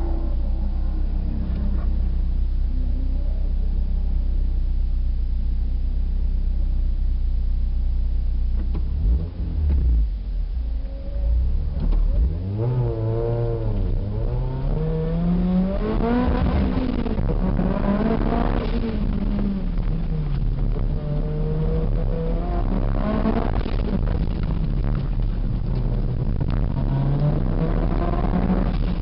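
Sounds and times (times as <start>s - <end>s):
car engine idling: 0.0s - 9.0s
car engine revving under acceleration: 8.5s - 29.0s.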